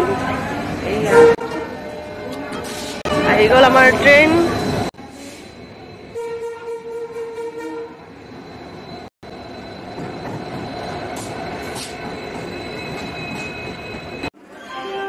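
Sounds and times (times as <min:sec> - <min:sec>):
passenger train rumbling: 0:00.0 - 0:15.0
train horn: 0:01.0 - 0:01.8, 0:06.2 - 0:08.0.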